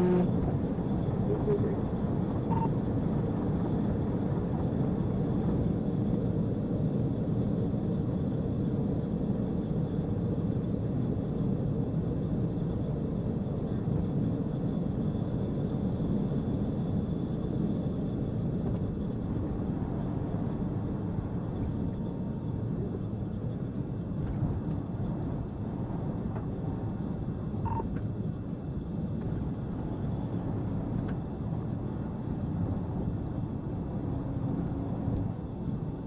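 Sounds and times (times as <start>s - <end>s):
vehicle driving at speed: 0.0s - 1.8s, 29.1s - 36.0s.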